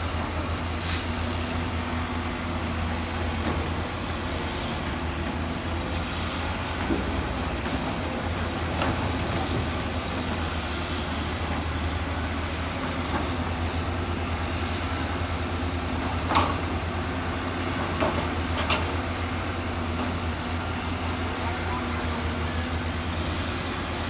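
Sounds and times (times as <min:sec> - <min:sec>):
heavy diesel machinery running: 0:00.0 - 0:24.0.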